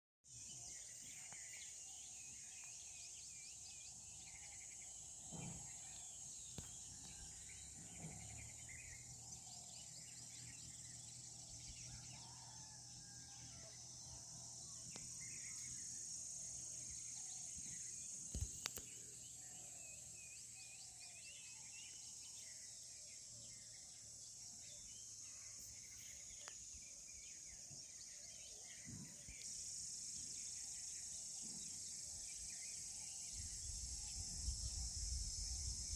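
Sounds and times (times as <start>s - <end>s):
high-pitched insect chorus: 0.3s - 35.9s.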